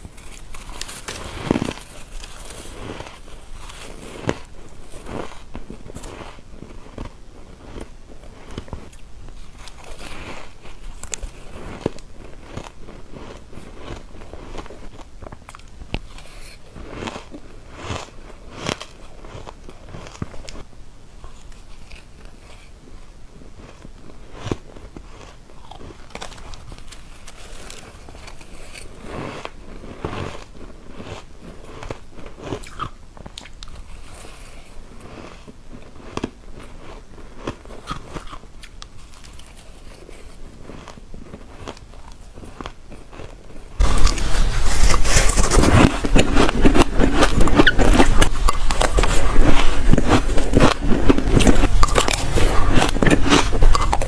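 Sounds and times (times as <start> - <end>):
ice crunching in bites: 0.0 - 6.4, 24.5 - 34.8, 37.4 - 54.0
chewing: 23.6 - 54.0.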